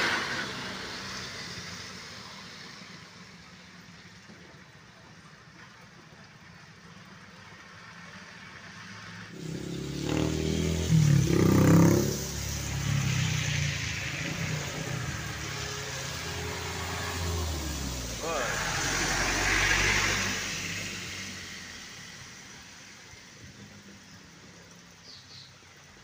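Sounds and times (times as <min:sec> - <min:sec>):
truck engine passing: 0:00.0 - 0:03.5, 0:09.0 - 0:24.8
tyres hissing on wet road: 0:00.0 - 0:26.0.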